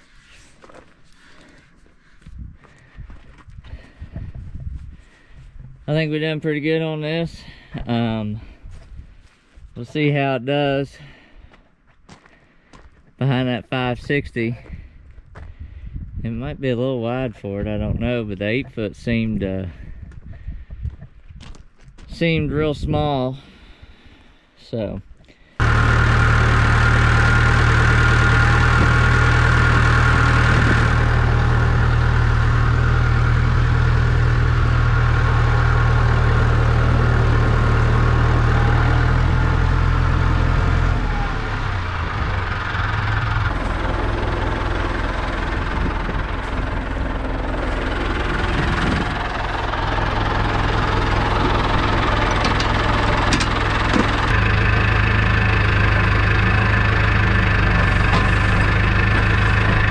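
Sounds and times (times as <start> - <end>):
tractor engine idling: 25.6 - 59.9.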